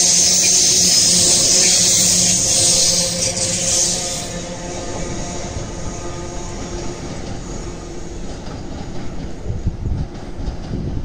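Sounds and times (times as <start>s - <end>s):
loud hiss: 0.0s - 5.3s
train mechanical whine: 0.0s - 11.0s.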